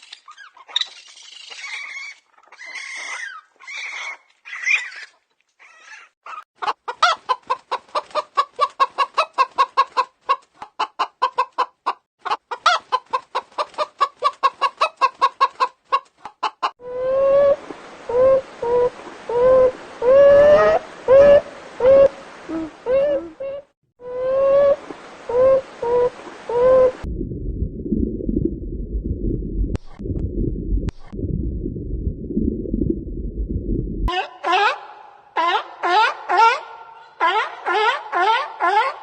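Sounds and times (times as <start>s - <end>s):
chicken clucking: 6.3s - 16.7s, 34.1s - 39.0s
hoarse chicken calls: 34.1s - 39.0s.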